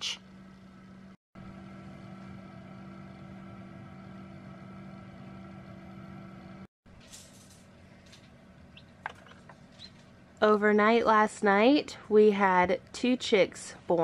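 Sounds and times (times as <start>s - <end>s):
incubator fan humming: 0.0s - 6.7s.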